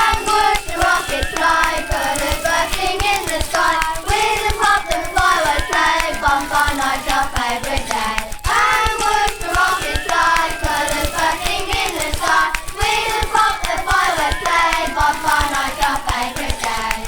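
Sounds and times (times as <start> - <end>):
group of voices singing: 0.0 - 17.0
rhythmic hand claps: 0.0 - 17.0.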